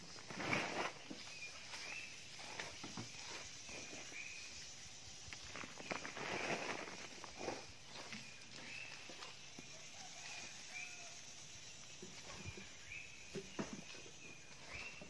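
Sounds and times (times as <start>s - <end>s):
soil scooped into plastic sack: 0.1s - 1.2s, 5.5s - 7.6s.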